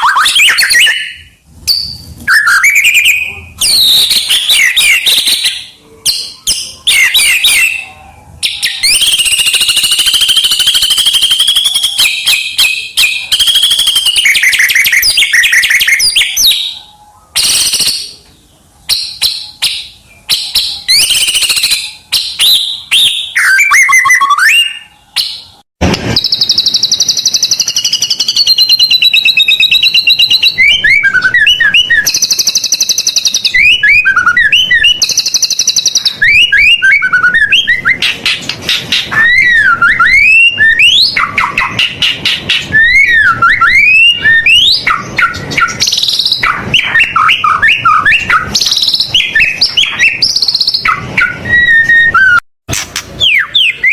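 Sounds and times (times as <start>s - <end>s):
songbird singing: 0.0s - 52.4s, 53.2s - 53.9s
sharp click: 52.7s - 53.2s.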